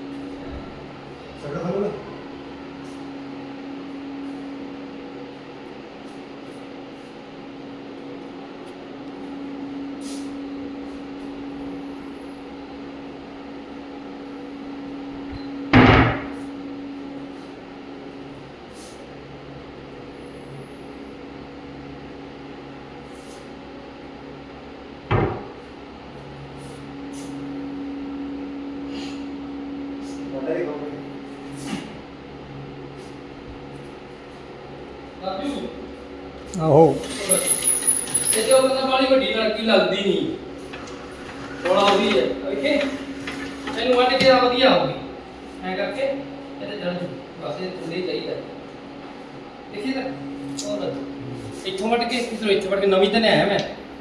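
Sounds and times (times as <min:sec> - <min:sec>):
steady machine hum: 0:00.0 - 0:54.0.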